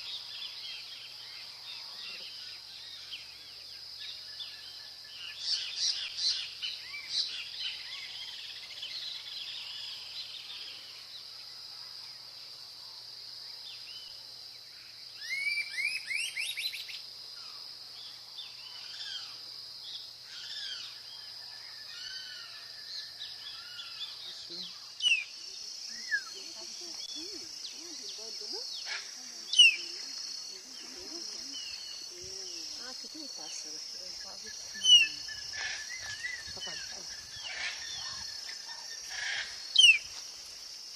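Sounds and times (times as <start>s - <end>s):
insect drone: 0.0s - 40.9s
birds chirping and calling: 20.2s - 40.2s.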